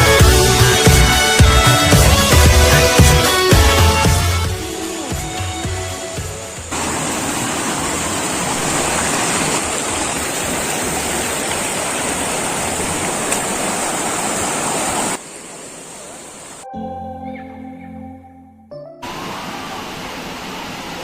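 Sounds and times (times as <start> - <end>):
waterfall pouring: 6.7 - 15.2.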